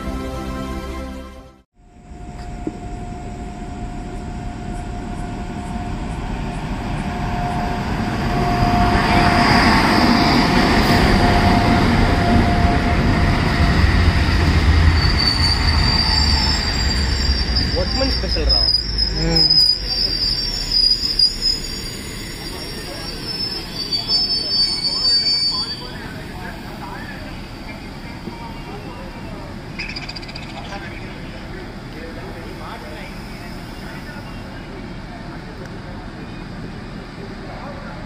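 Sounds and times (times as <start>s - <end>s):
electric locomotive passing: 0.0s - 38.0s
train coaches rolling by: 1.9s - 38.0s
high-pitched wheel squeal: 14.9s - 26.1s.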